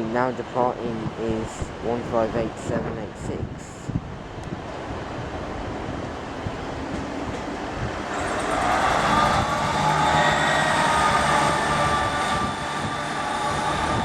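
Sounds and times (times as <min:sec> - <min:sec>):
diesel train engine pulling out: 0:06.1 - 0:14.0.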